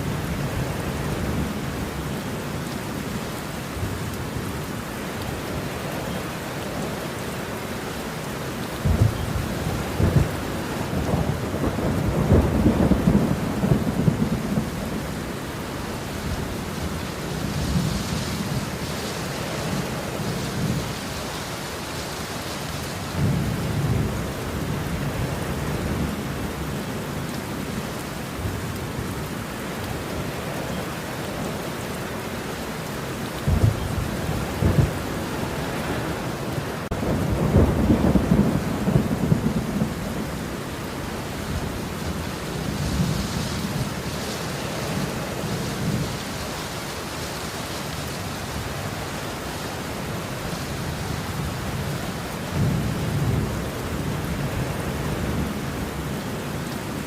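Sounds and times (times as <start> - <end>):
steady rain: 0.0 - 57.0
rolling thunder: 8.8 - 15.1, 33.4 - 35.2, 36.8 - 40.8.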